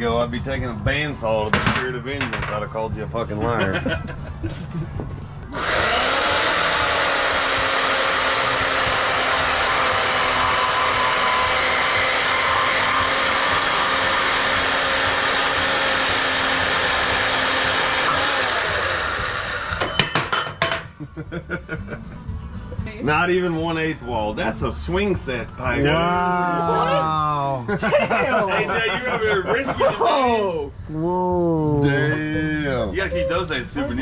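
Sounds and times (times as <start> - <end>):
bandsaw cutting metal tube: 5.5 - 20.8.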